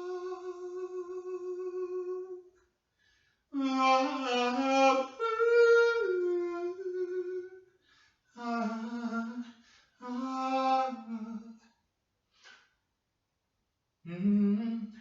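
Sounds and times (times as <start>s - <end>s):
person humming: 0.0s - 2.5s, 3.6s - 7.6s, 8.4s - 11.6s.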